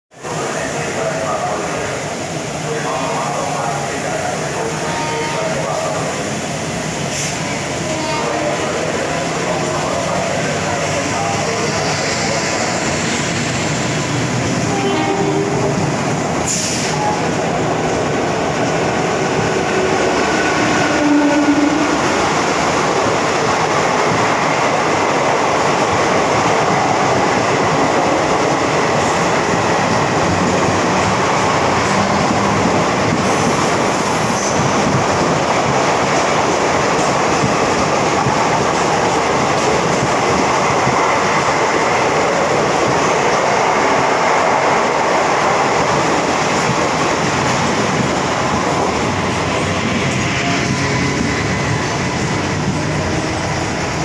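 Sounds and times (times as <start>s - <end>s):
train wheels rumbling: 0.3s - 54.0s
rail clatter: 2.7s - 54.0s.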